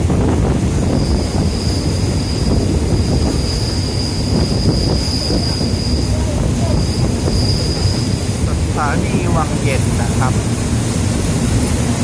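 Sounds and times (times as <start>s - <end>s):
train rumbling on rails: 0.0s - 12.0s
high-pitched wheel squeal: 0.9s - 8.3s.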